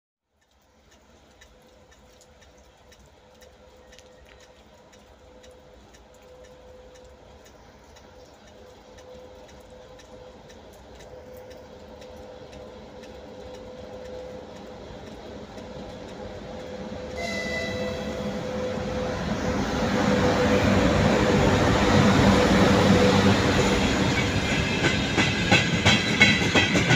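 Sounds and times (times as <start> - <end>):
faint regular ticks: 0.3 - 18.4
train rumble and hum: 0.4 - 26.9.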